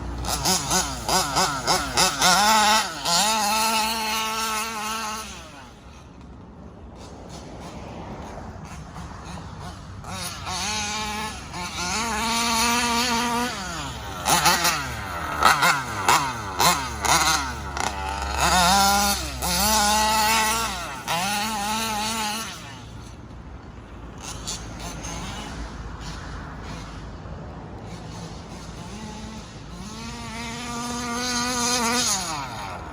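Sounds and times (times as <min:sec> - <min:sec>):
small gas engine revving: 0:00.0 - 0:32.9.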